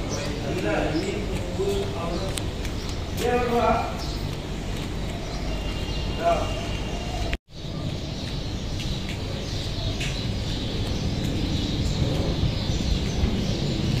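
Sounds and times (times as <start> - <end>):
steady low rumble: 7.6 - 14.0.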